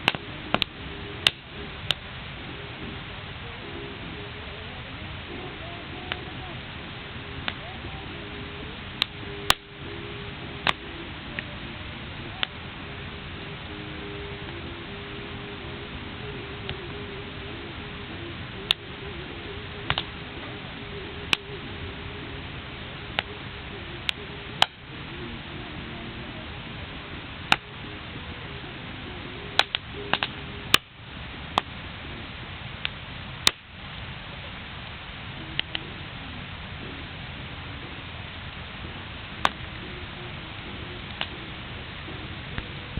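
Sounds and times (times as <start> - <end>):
sharp pops of fire: 0.0 - 2.1, 9.0 - 9.7, 19.9 - 20.2, 24.0 - 24.9, 27.4 - 27.7, 29.6 - 31.8, 32.8 - 33.8, 41.0 - 41.3
background hiss: 0.0 - 42.9
bonfire crackling: 0.0 - 42.9.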